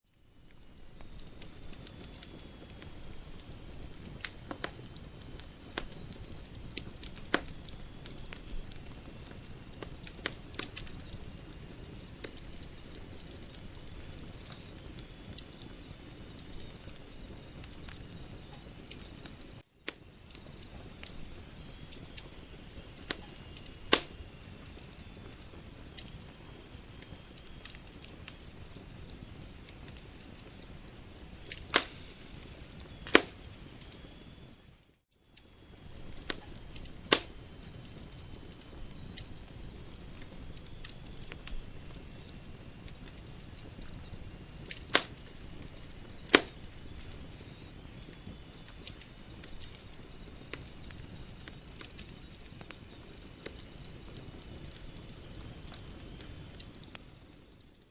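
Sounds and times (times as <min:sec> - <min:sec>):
wood fire crackling and popping: 0:00.1 - 0:57.9
rush of flame: 0:31.4 - 0:34.0.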